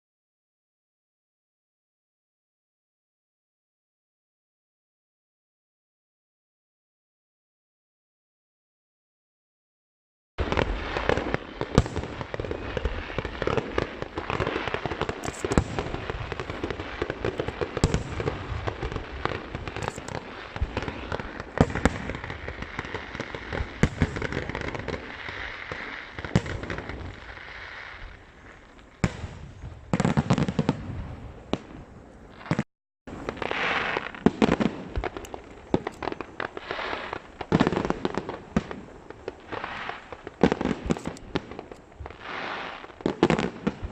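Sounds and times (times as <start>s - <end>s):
fireworks bangs and crackling: 10.4s - 43.9s.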